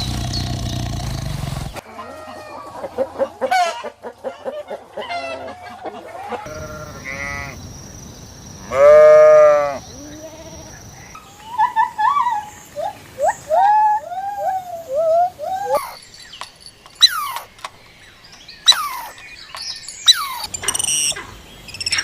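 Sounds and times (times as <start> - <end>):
chicken clucking: 1.9 - 6.5
goat bleating: 6.5 - 7.6.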